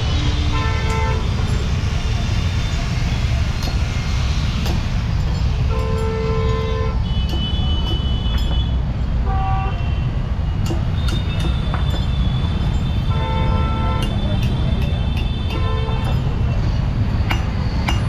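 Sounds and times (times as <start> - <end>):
street traffic rumble: 0.0 - 18.0
vehicle horns honking: 0.5 - 1.4, 5.7 - 10.2, 12.0 - 16.2.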